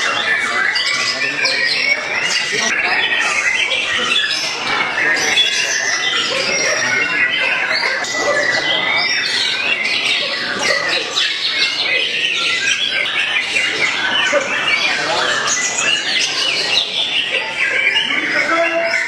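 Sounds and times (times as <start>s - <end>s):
other birds singing: 0.0s - 19.0s.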